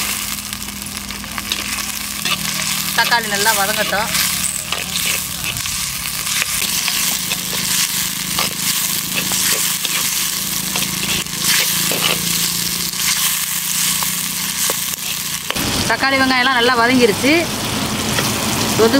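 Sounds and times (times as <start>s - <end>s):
vegetables sizzling in hot oil: 0.0s - 18.9s
metal ladle scraping a pot: 1.5s - 15.6s.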